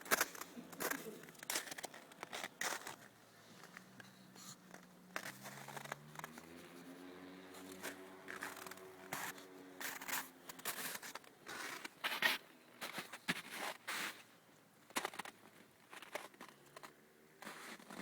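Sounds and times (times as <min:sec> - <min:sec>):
crackling handling noise: 0:00.0 - 0:06.6.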